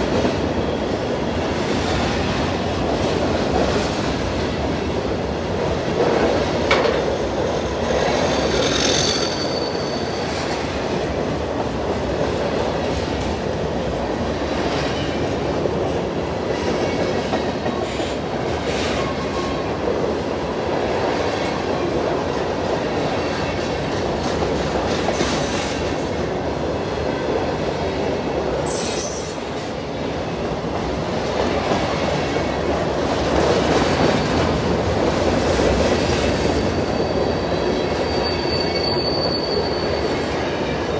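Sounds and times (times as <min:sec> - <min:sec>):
freight train wheels rumbling: 0:00.0 - 0:40.9
wheels clicking over rail joints: 0:06.0 - 0:07.2
high-pitched wheel squeals: 0:08.3 - 0:10.4, 0:36.5 - 0:40.6.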